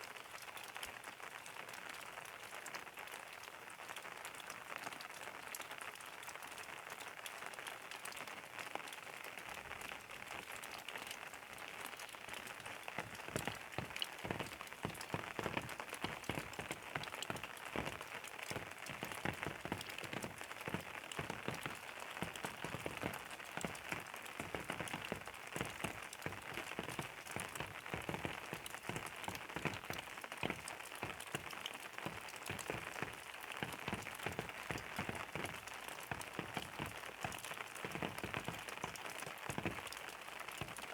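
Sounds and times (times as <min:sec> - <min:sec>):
raindrops pattering on a surface: 0:00.0 - 0:40.9.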